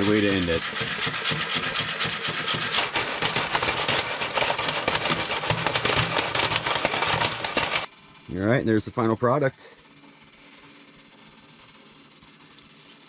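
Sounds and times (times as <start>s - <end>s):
popcorn popping: 0.0s - 7.9s.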